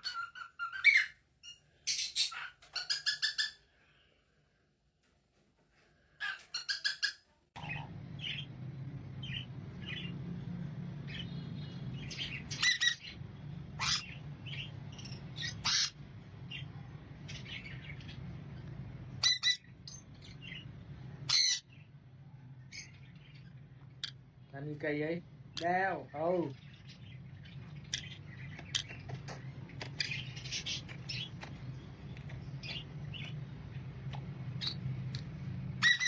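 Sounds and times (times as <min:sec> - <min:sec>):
parrot chirping and squawking: 0:00.0 - 0:03.7, 0:06.2 - 0:08.6, 0:11.1 - 0:21.9, 0:22.6 - 0:24.4, 0:26.5 - 0:31.4, 0:34.5 - 0:36.0
steady low hum: 0:07.6 - 0:36.0.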